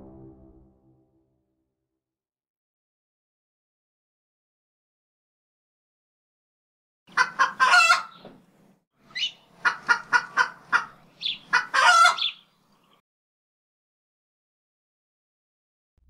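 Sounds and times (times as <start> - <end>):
bird calling: 9.1 - 13.0.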